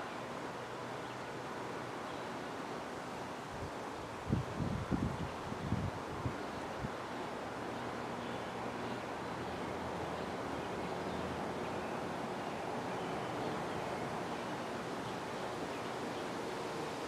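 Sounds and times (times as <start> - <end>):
wind blowing: 3.5 - 7.6.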